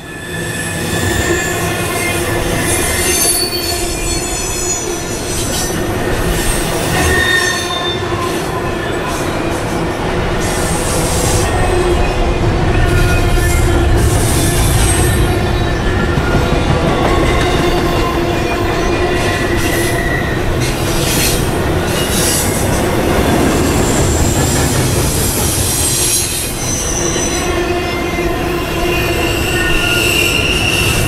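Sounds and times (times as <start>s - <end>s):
high-pitched wheel squeals: 0.0s - 5.8s, 6.4s - 9.0s, 25.7s - 31.0s
freight train wheels rumbling: 0.0s - 31.0s.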